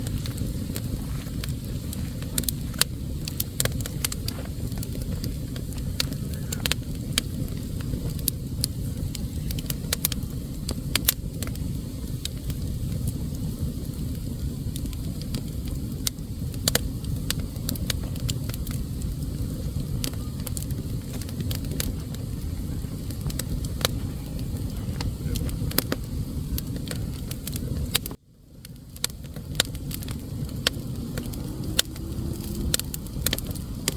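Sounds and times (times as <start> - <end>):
fire crackling and popping: 0.0 - 33.9
fire flames rumbling: 0.0 - 33.9.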